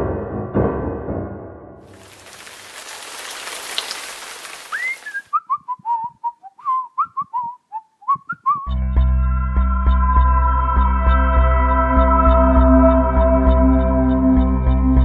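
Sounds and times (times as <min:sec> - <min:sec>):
rushing hiss: 0:01.9 - 0:05.3
high sliding whistles: 0:02.3 - 0:08.6
music with sustained tones: 0:08.8 - 0:15.0.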